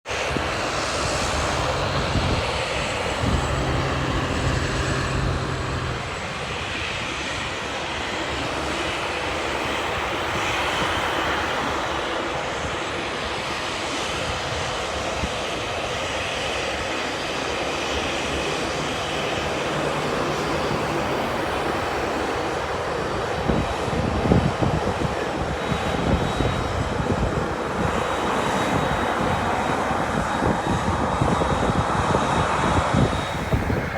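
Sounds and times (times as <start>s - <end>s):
jet engines rushing: 0.1s - 12.6s, 25.0s - 33.9s.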